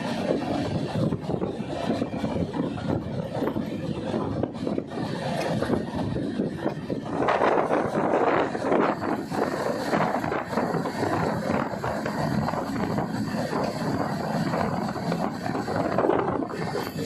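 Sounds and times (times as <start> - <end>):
clatter of train wheels: 0.0 - 17.0
train rumbling past: 0.0 - 17.0
wind buffeting microphone: 0.0 - 17.0.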